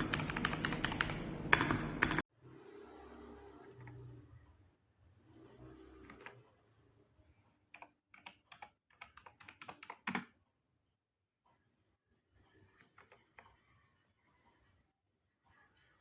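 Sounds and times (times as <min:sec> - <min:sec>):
keyboard keystrokes: 0:00.0 - 0:02.2, 0:07.8 - 0:10.3.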